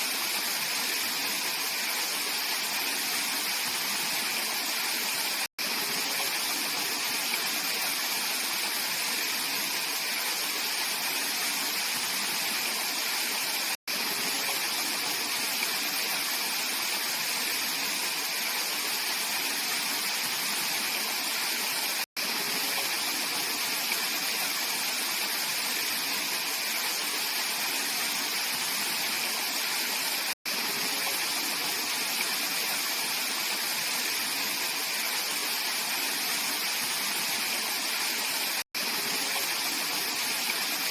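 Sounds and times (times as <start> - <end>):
stream water flowing: 0.0 - 40.9.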